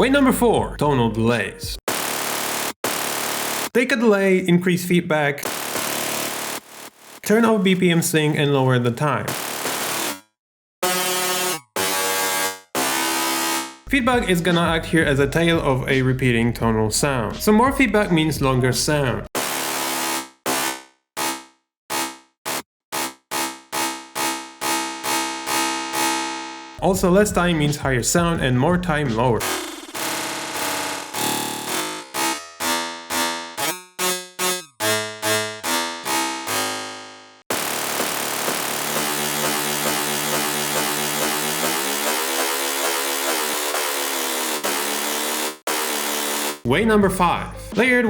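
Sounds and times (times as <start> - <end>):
buzzy pitched delay drone: 29.1 - 32.5.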